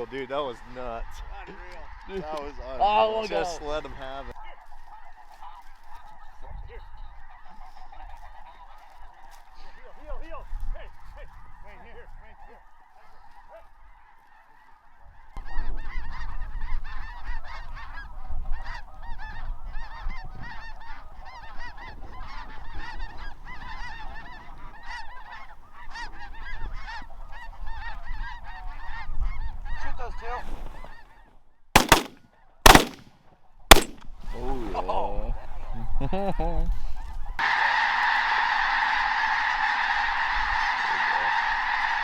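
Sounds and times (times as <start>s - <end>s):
flock of geese honking: 0.0s - 32.9s, 35.4s - 42.0s
shotgun blasts: 31.8s - 34.2s.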